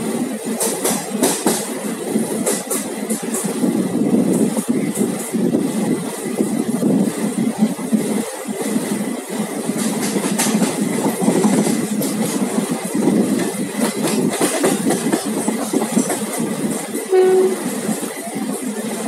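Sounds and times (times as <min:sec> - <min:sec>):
train wheels clattering over rails: 0:00.0 - 0:19.0
train horn blast: 0:17.1 - 0:17.7.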